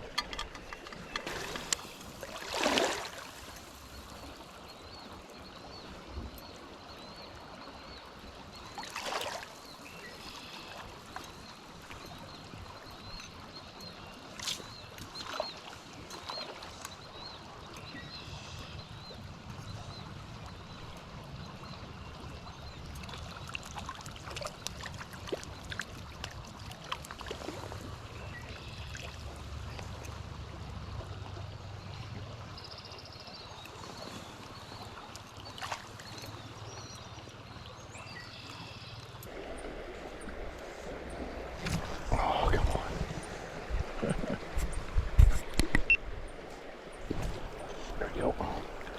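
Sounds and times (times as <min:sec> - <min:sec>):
stream water trickling: 0:00.0 - 0:48.9
small water splashes: 0:01.2 - 0:05.1, 0:08.5 - 0:13.2, 0:22.2 - 0:48.9
bird calls: 0:47.0 - 0:48.9.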